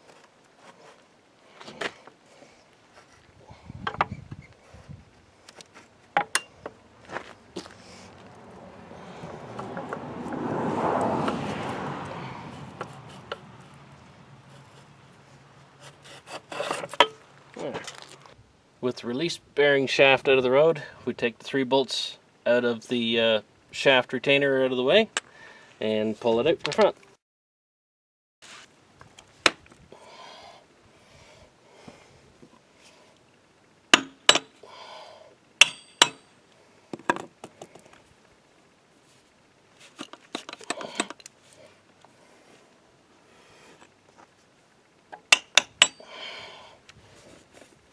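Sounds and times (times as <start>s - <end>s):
hand tools clinking on metal: 6.2s - 6.6s, 35.6s - 36.3s, 39.9s - 41.3s, 45.2s - 46.3s
metal clanks: 6.2s - 6.8s, 35.6s - 36.3s, 45.2s - 46.1s
rasping: 14.4s - 17.0s.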